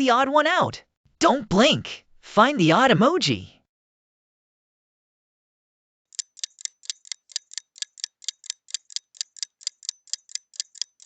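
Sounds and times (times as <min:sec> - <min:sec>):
rapid clock ticking: 0:06.1 - 0:11.0.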